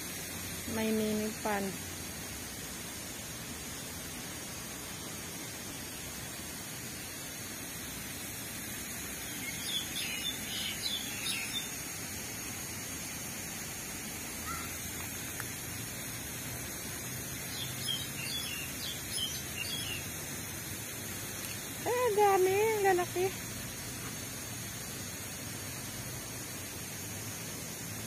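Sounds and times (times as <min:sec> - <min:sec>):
background hiss: 0:00.0 - 0:28.0
small birds chirping: 0:09.1 - 0:12.0, 0:14.4 - 0:15.5, 0:17.3 - 0:20.2.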